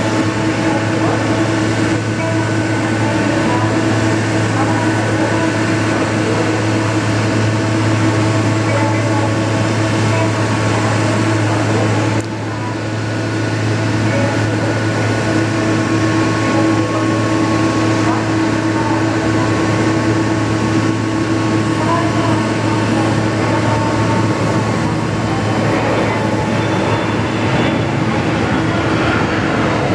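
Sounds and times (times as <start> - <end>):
jet engines droning and whining: 0.0 - 29.9.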